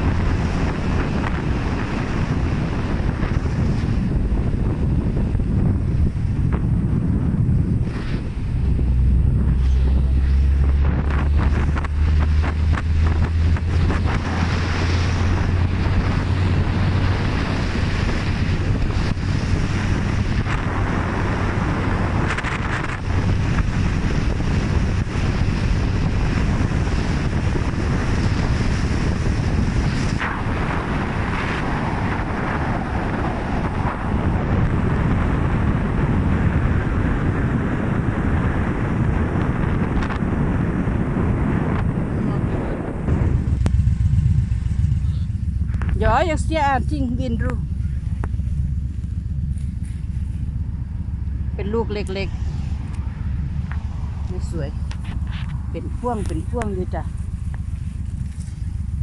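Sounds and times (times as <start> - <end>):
motorcycle engine drone: 0.0 - 59.0
road noise: 0.0 - 59.0
wind buffeting microphone: 0.0 - 59.0.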